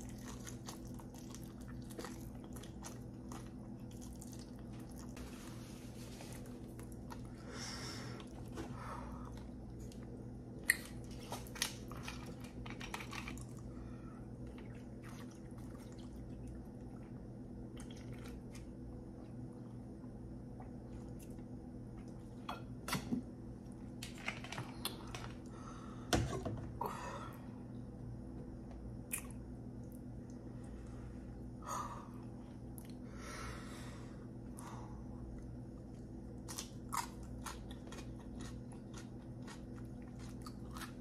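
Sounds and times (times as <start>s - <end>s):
wet chewing and swallowing: 0.0s - 5.2s, 35.2s - 41.0s
low electrical hum: 0.0s - 41.0s.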